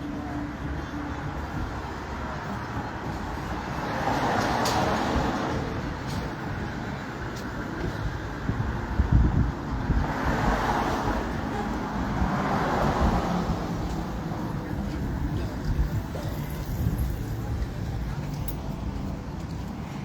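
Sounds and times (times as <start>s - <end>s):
rumble of passing vehicles: 0.0s - 20.0s.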